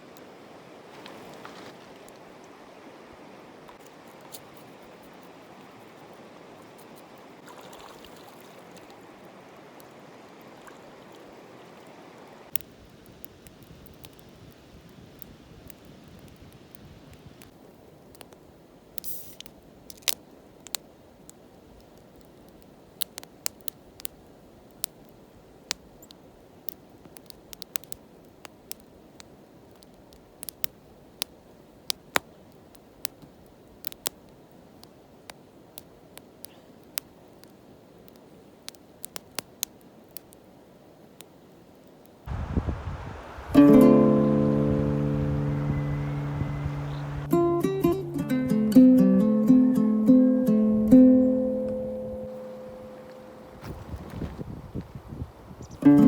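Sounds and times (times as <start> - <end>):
flowing water rushing: 5.6 - 12.5, 42.3 - 47.7, 52.3 - 53.6.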